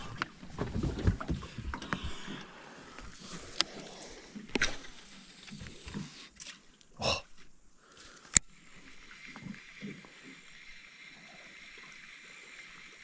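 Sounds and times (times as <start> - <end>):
knocks and bumps in boat: 0.0 - 2.1.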